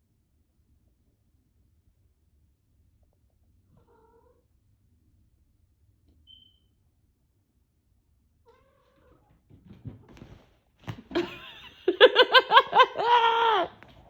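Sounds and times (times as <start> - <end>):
cat yowling: 12.7 - 13.7.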